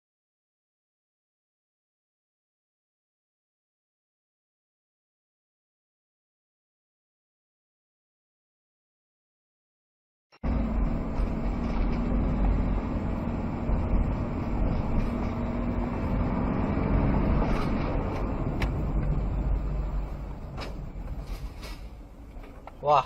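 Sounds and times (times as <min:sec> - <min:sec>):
low hum: 0:10.4 - 0:22.8
vehicle engine and road rumble: 0:10.4 - 0:23.0.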